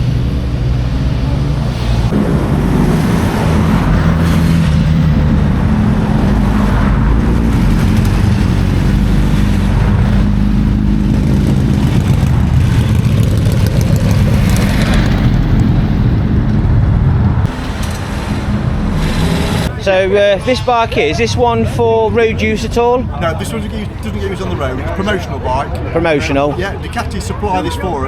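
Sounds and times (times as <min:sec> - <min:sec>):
motorcycle engines rumbling: 0:00.0 - 0:28.0.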